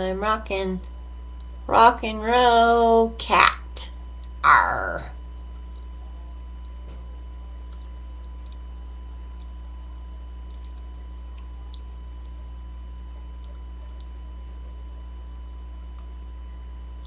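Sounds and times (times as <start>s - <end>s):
low electrical hum: 0.0s - 17.0s
faint ticks: 0.8s - 1.7s, 5.2s - 14.8s.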